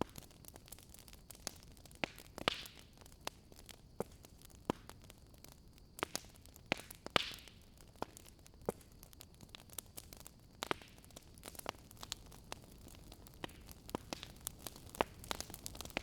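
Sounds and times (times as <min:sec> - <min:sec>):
wood fire crackling: 0:00.0 - 0:16.0
fire hissing: 0:09.7 - 0:16.0.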